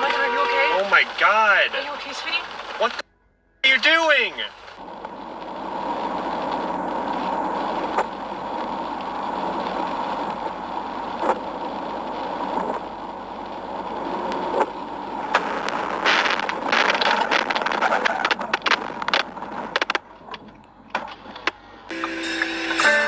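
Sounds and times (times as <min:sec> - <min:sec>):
car road and engine noise: 0:00.0 - 0:23.0
sharp clicks: 0:12.2 - 0:22.9.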